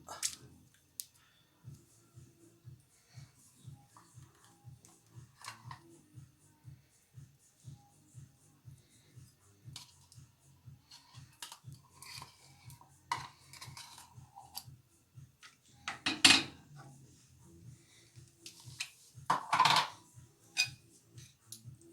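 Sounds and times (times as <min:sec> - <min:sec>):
dishes and utensils clinking: 0:10.9 - 0:14.7, 0:15.4 - 0:16.8, 0:18.4 - 0:21.3.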